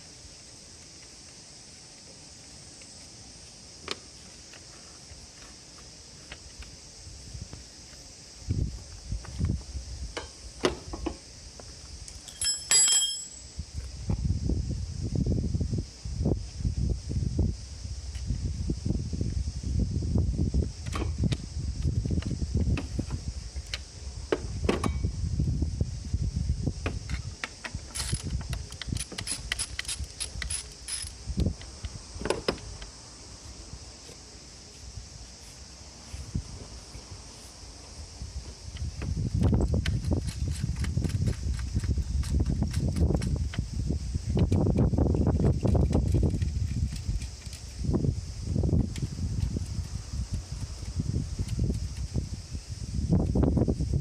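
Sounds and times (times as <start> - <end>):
steady high hiss: 0.0 - 54.0
metal tools clinking: 12.1 - 13.5, 28.9 - 31.2
bright metallic clink: 12.2 - 13.5.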